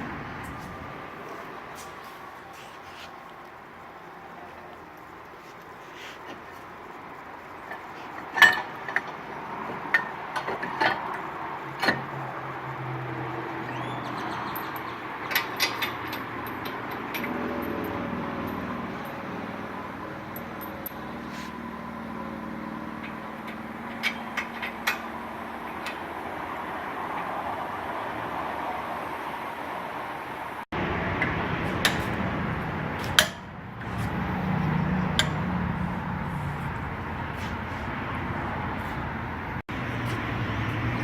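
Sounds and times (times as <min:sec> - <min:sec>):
metallic knocks: 0:31.1 - 0:35.7.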